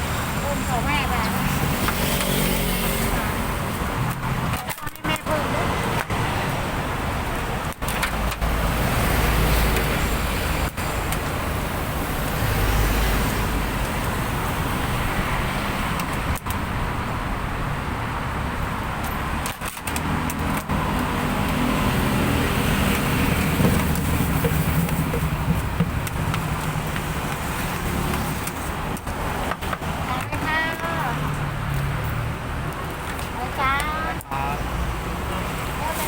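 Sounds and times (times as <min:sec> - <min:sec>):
passing vehicles hissing: 0:00.0 - 0:04.5.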